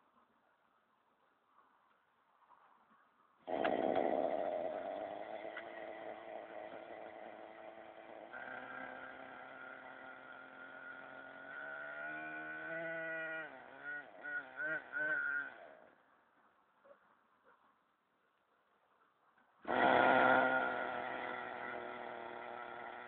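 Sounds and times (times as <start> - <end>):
model helicopter motor whining: 3.5 - 15.9, 19.6 - 23.0.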